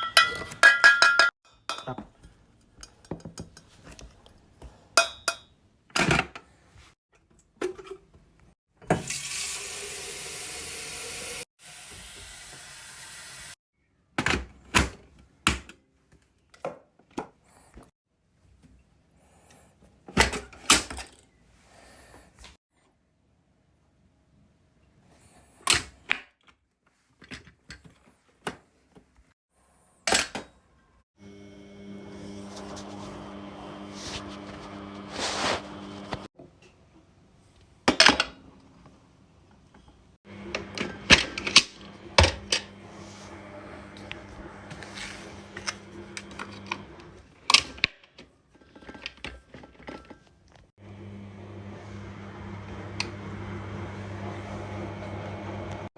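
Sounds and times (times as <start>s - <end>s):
steady machine hum: 31.2s - 36.3s, 40.3s - 47.2s.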